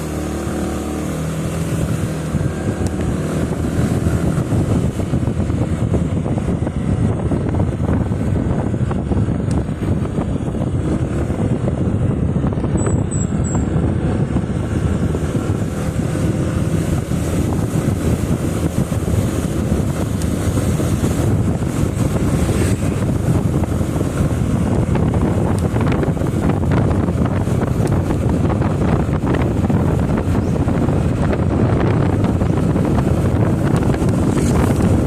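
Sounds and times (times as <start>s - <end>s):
motorcycle road noise: 0.0s - 35.0s
wind rushing over microphone: 0.0s - 35.0s.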